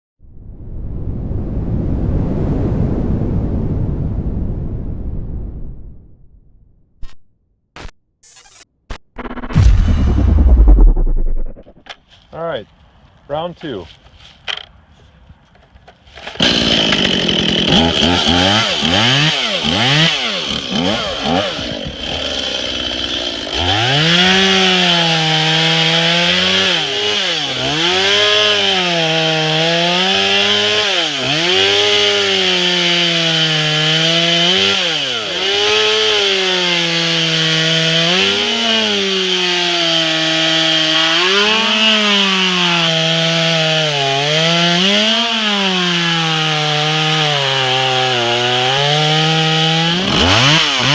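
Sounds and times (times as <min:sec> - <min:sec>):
chainsaw revving and cutting wood: 0:16.0 - 0:50.9.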